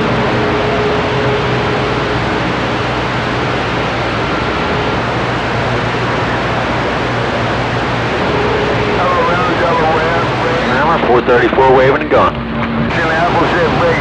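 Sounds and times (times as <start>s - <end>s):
radio static hiss: 0.0s - 14.0s
faint radio whistles: 8.4s - 14.0s.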